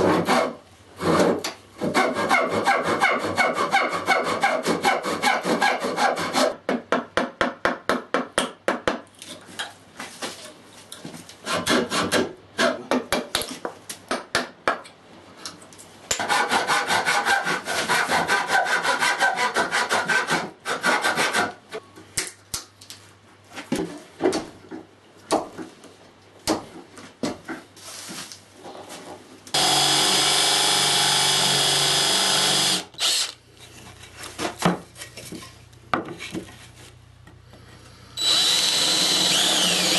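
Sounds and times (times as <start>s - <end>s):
small power tool running: 29.6s - 33.4s, 38.2s - 39.9s.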